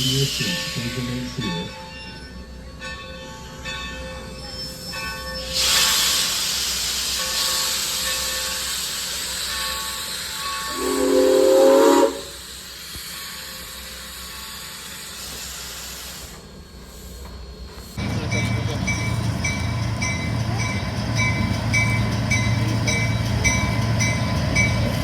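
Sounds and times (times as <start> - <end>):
steam locomotive venting steam: 0.0 - 1.7, 4.5 - 25.0
steam whistle blast: 10.7 - 12.5.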